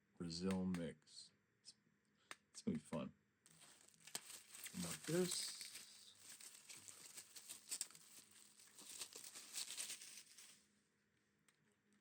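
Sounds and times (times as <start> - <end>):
packaging crinkling: 3.5 - 10.6.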